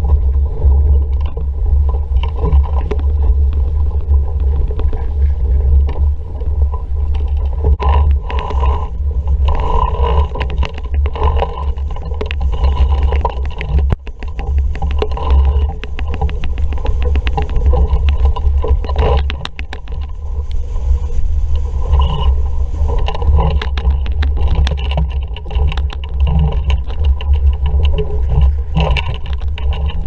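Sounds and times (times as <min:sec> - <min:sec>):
water splashing against hull: 0:00.0 - 0:30.0
wind buffeting microphone: 0:00.0 - 0:30.0
clicks and knocks: 0:06.7 - 0:20.6, 0:22.9 - 0:30.0.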